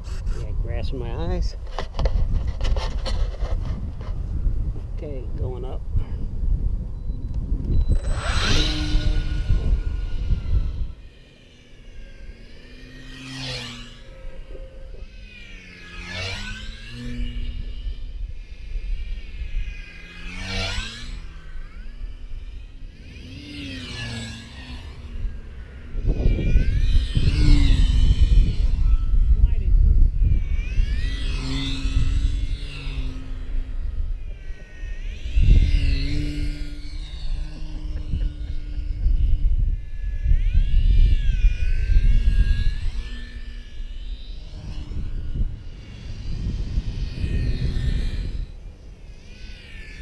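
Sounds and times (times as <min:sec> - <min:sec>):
wind buffeting microphone: 0:00.0 - 0:11.2, 0:16.6 - 0:49.5
model plane motor whining: 0:00.9 - 0:50.0.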